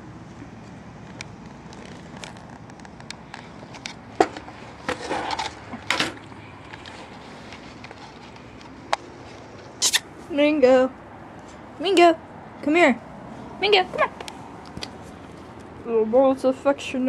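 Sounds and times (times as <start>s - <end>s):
skateboard wheels rolling on pavement: 0.0s - 9.8s.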